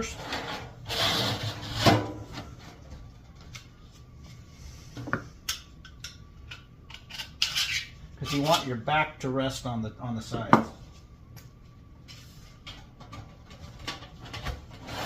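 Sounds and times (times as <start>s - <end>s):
sheet metal scraping: 0.0s - 2.6s, 14.2s - 15.0s.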